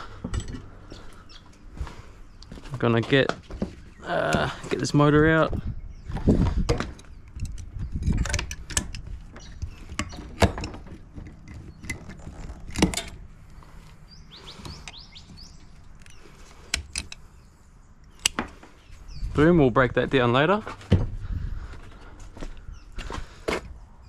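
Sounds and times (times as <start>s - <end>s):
metal parts and tools clanking: 0.2s - 0.7s, 6.7s - 13.3s.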